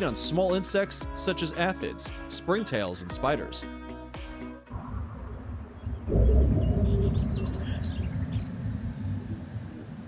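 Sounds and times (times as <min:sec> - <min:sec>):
low rumbling background noise: 0:04.8 - 0:10.0.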